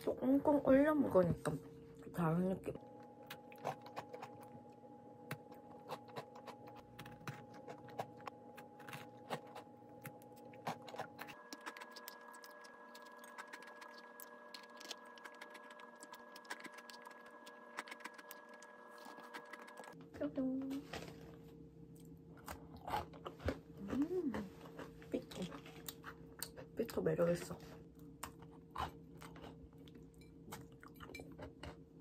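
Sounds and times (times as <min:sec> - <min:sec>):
crisp cookie crunching: 0:03.2 - 0:20.0.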